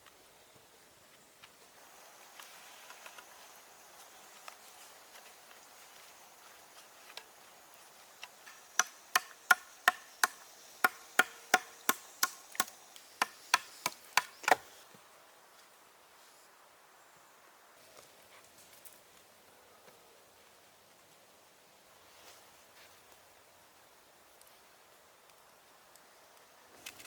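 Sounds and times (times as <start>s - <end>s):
hand tool knocking on wood: 8.8s - 14.6s.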